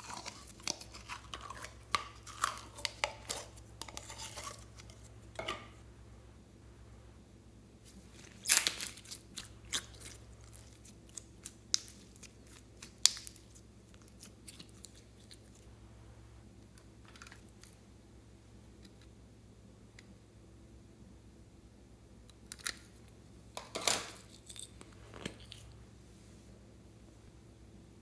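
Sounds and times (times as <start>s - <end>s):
slime squishing with popping clicks: 8.4s - 15.0s.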